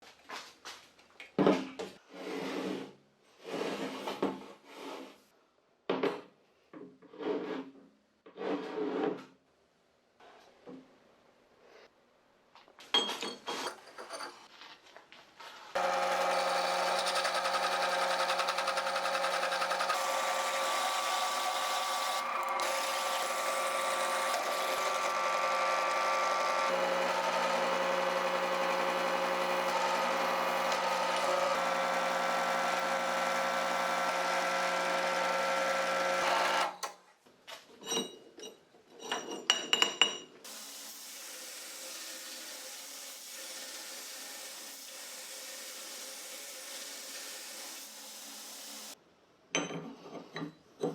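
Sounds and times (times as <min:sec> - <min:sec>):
power tool motor running: 0:15.8 - 0:36.9.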